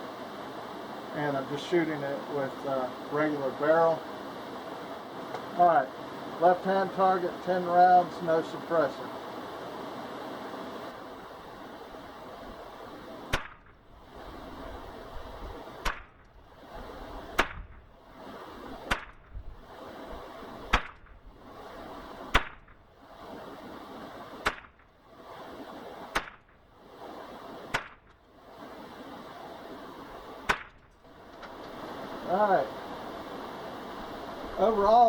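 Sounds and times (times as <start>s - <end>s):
rifle shots: 13.3s - 13.8s, 15.8s - 16.2s, 20.4s - 21.2s, 22.2s - 26.6s, 30.1s - 30.9s.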